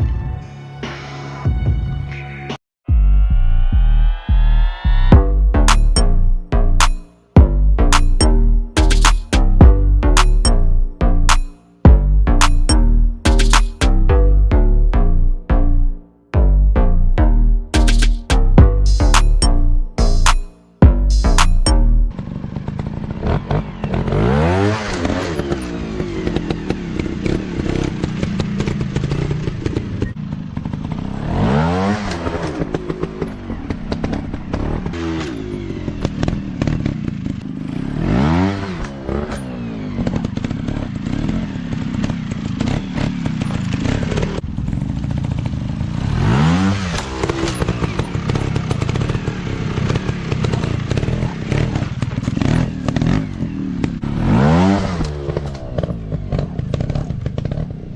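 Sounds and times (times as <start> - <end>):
dirt bike engine revving: 17.6 - 57.9.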